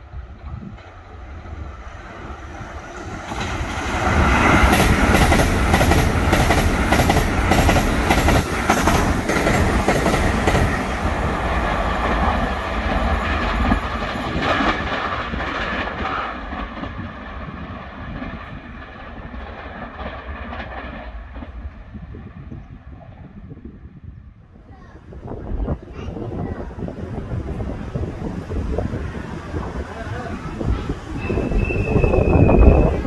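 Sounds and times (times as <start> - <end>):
train wheels rushing on rail: 0.0 - 23.4, 24.7 - 33.0
wheels clacking over rail joints: 2.9 - 21.8.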